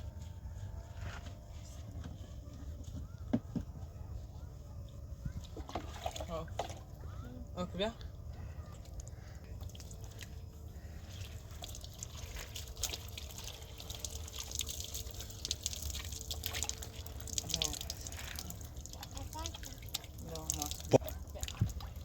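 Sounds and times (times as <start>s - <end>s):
water dripping and splashing: 8.8s - 22.0s.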